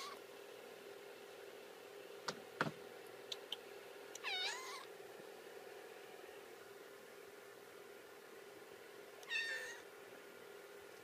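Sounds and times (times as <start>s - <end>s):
kitten mewing: 4.2s - 4.9s, 9.3s - 9.8s.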